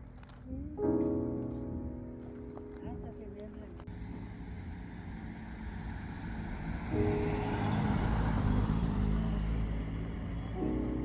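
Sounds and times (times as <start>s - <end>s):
road vehicle passing: 2.2s - 11.0s.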